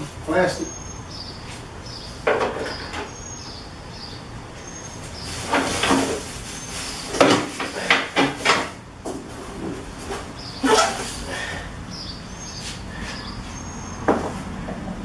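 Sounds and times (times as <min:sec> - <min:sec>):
parts and packaging rattling: 0:05.2 - 0:11.3.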